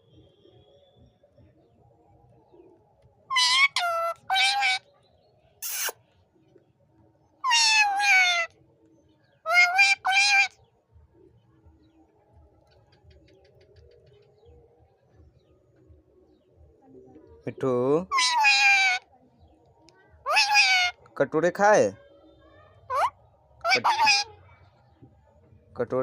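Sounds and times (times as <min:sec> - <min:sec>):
parrot calling: 0:03.3 - 0:04.8, 0:05.6 - 0:06.0, 0:07.4 - 0:08.5, 0:09.5 - 0:10.5, 0:18.1 - 0:19.1, 0:20.3 - 0:21.0, 0:22.9 - 0:24.3
parrot harsh screech: 0:03.3 - 0:04.8, 0:05.6 - 0:06.0, 0:07.4 - 0:08.5, 0:09.5 - 0:10.5, 0:18.1 - 0:19.1, 0:20.3 - 0:21.0, 0:22.9 - 0:24.3.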